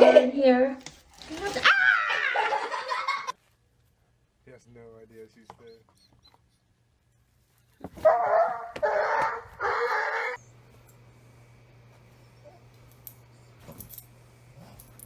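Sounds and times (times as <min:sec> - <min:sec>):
dog barking: 0:08.0 - 0:10.4.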